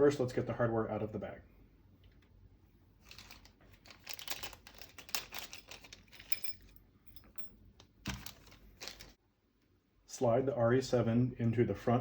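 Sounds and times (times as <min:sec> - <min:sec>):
plastic bag rustling: 0:03.0 - 0:06.7, 0:08.0 - 0:09.2
metal screws clinking: 0:03.1 - 0:09.1.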